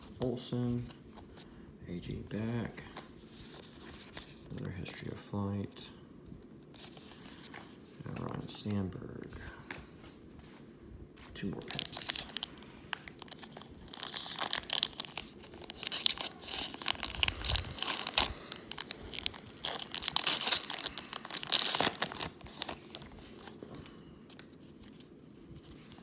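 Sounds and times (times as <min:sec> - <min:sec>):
card pack wrapper crinkling: 0:11.3 - 0:26.0.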